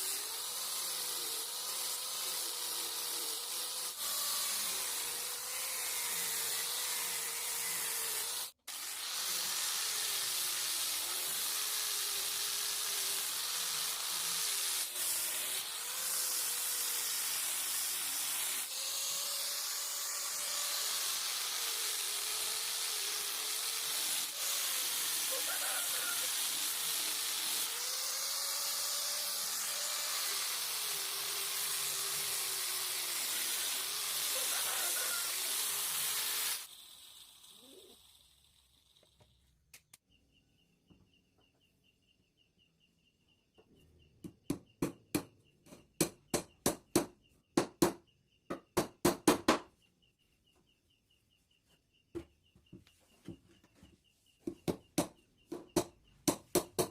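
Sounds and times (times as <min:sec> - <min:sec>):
loud steady hiss: 0:08.7 - 0:37.0.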